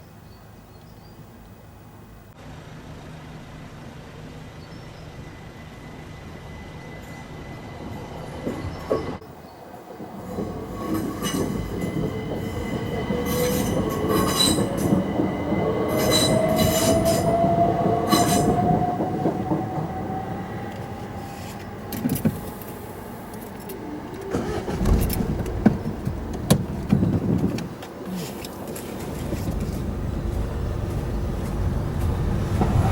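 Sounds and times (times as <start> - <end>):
train wheels clattering on rails: 9.8 - 22.7, 29.0 - 32.9.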